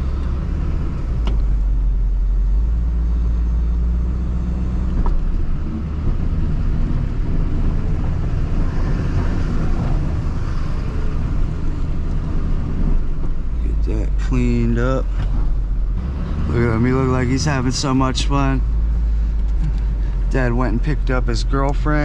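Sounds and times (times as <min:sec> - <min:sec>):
truck engine low rumble: 0:00.0 - 0:22.0.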